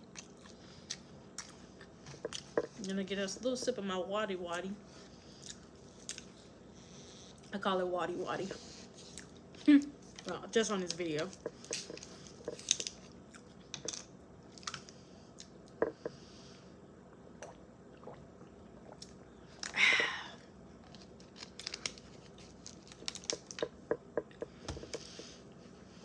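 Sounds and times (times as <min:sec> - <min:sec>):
soft breaths: 0:08.4 - 0:09.3, 0:14.8 - 0:16.9, 0:24.4 - 0:26.0
person sipping and swallowing: 0:17.1 - 0:20.3.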